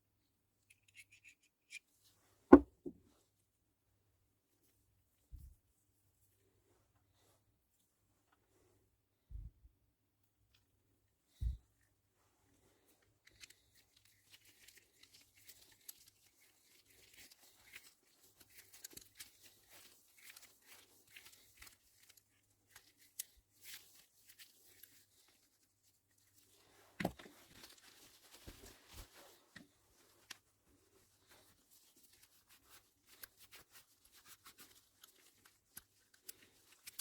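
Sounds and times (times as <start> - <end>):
rustling of handled object: 11.3 - 37.0.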